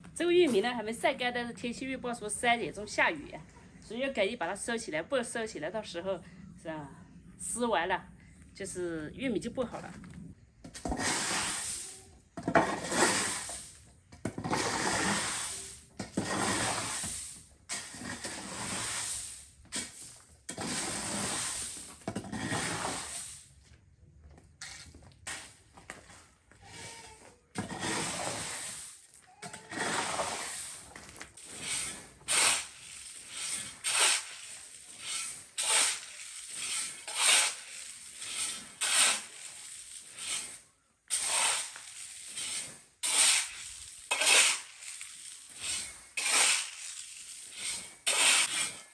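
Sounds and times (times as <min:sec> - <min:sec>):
dry corn rattling and rustling: 0:46.6 - 0:47.9.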